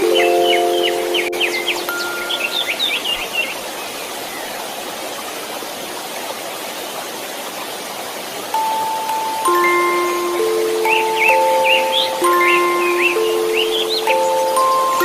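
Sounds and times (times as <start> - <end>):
soft lullaby chimes: 0.0 - 3.5, 8.5 - 15.0
birds chirping: 0.0 - 5.3, 8.5 - 15.0
white noise hiss: 0.0 - 15.0.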